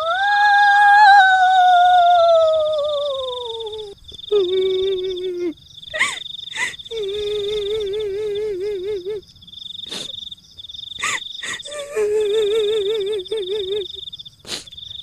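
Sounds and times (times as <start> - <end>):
high trembling wail: 0.0 - 9.2
insect trill: 0.0 - 15.0.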